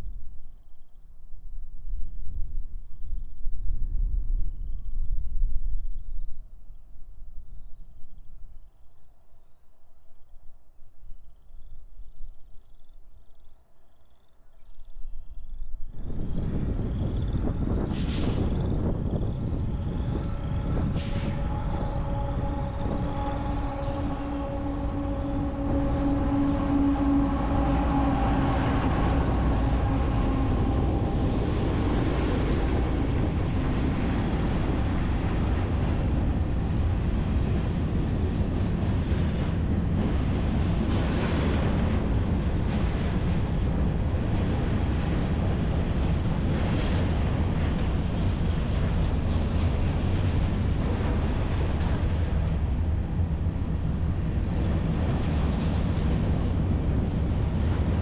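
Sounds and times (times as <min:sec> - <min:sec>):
freight train rumbling past: 0:15.9 - 0:58.0
train horn: 0:19.2 - 0:33.0
high wheel squeal: 0:38.0 - 0:46.5.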